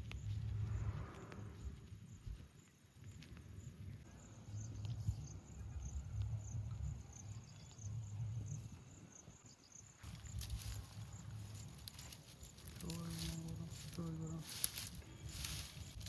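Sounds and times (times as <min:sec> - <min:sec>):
low rumble: 0:00.0 - 0:02.4
crickets chirping: 0:00.0 - 0:16.0.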